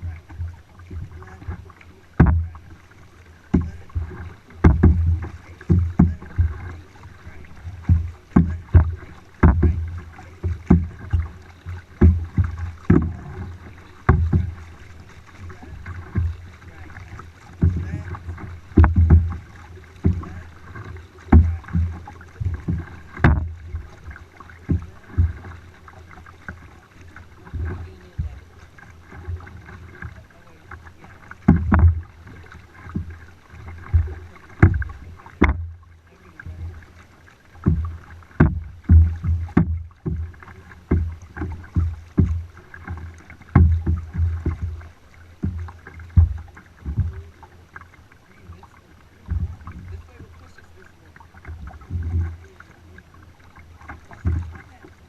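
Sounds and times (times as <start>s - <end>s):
paddle thumps and knocks: 0.0s - 55.0s
water and wind rumble: 0.0s - 55.0s.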